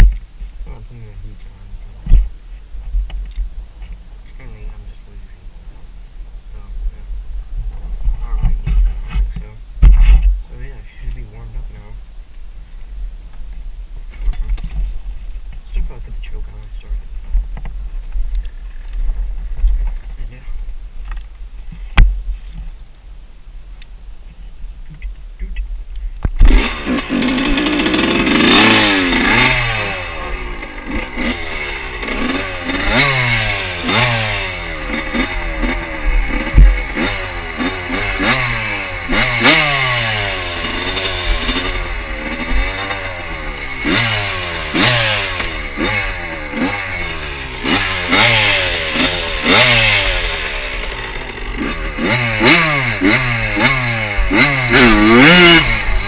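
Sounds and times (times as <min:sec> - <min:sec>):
motorcycle engine revving: 0:26.4 - 0:56.0.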